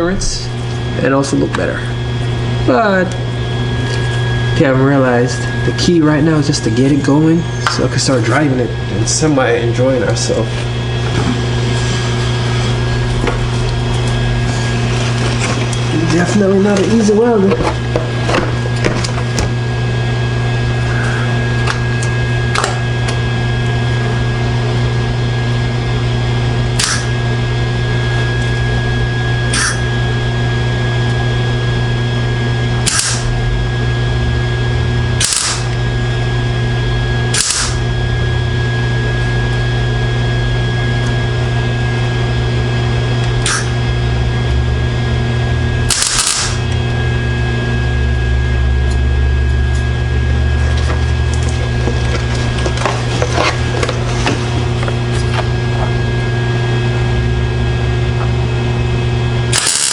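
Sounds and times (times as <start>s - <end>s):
welding machine hum: 0.0s - 59.9s
welder crackling bursts: 35.2s - 35.8s, 37.3s - 37.8s, 45.9s - 46.7s, 59.5s - 59.9s.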